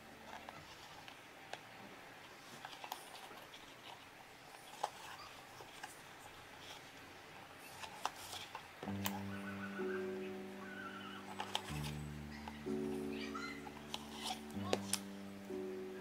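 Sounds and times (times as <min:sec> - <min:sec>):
background music with held notes: 0:08.8 - 0:16.0.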